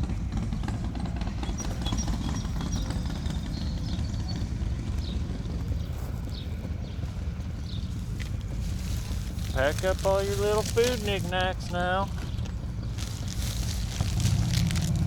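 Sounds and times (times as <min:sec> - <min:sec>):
wind rumbling on microphone: 0:00.8 - 0:15.0
gear being handled and packed: 0:07.5 - 0:15.0.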